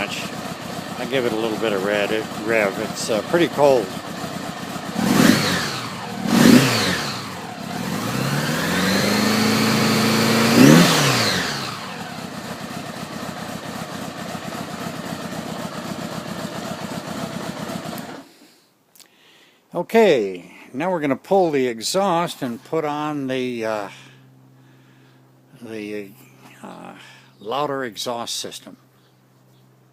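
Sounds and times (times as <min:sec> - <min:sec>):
motorcycle engine revving and idling: 0:00.0 - 0:18.4.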